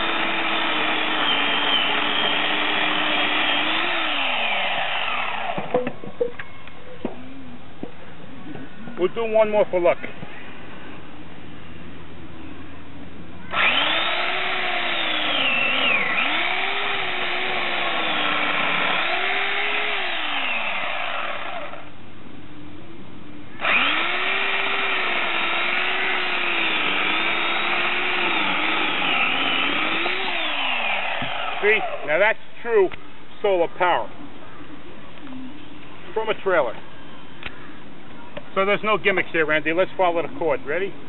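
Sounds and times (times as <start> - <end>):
electric chainsaw cutting wood: 0.0 - 5.8, 13.5 - 21.9, 23.6 - 32.1.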